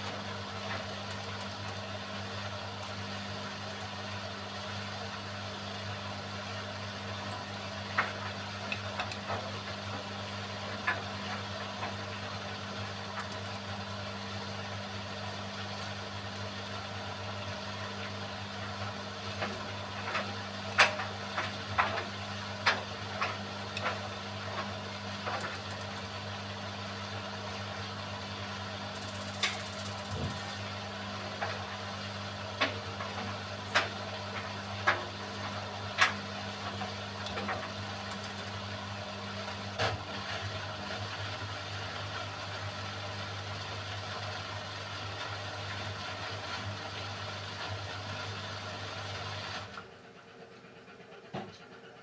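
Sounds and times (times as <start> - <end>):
washing machine motor hum: 28.9 - 37.2.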